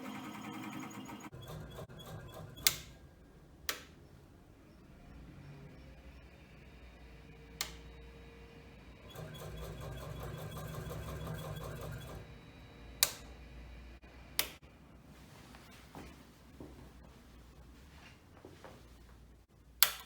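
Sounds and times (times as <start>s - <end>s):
sharp clicks: 1.5s - 3.0s, 3.6s - 4.1s, 7.5s - 8.1s, 12.9s - 13.4s, 14.3s - 14.6s, 19.8s - 20.0s.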